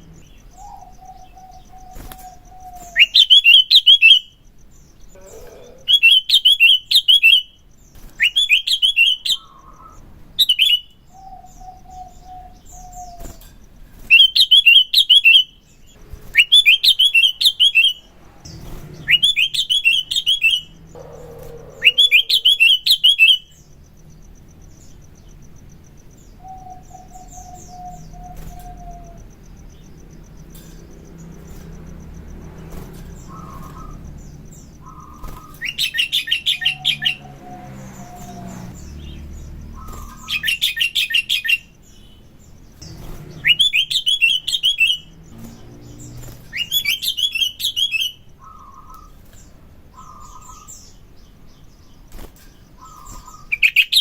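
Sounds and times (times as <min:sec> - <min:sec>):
bulbul chattering song: 0:00.0 - 0:54.0
faint background hum: 0:00.0 - 0:54.0.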